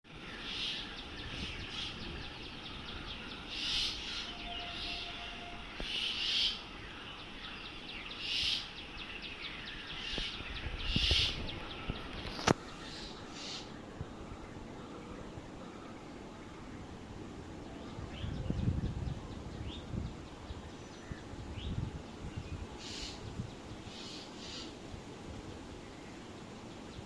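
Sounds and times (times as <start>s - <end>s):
fast fine bird chatter: 5.8s - 24.8s.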